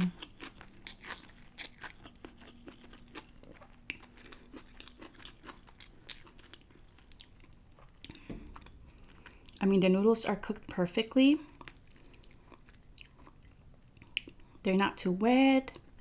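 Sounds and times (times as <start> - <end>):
chewing noodles: 0.0 - 9.6, 11.5 - 14.6.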